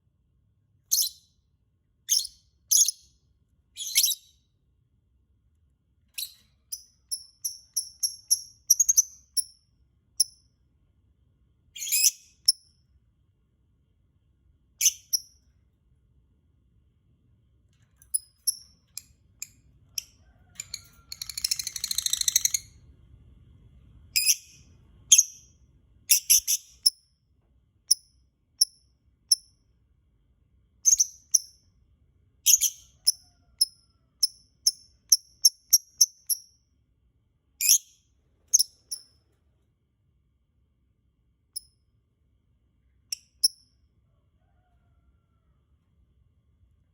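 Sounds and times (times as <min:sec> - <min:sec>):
lovebird chirping: 0:00.9 - 0:01.4, 0:02.1 - 0:03.2, 0:03.8 - 0:04.5, 0:06.2 - 0:09.6, 0:11.8 - 0:12.6, 0:14.8 - 0:15.4, 0:18.1 - 0:22.8, 0:24.2 - 0:25.5, 0:26.1 - 0:27.0, 0:30.8 - 0:31.7, 0:32.4 - 0:36.6, 0:37.6 - 0:39.1
lovebird chattering: 0:21.1 - 0:22.6.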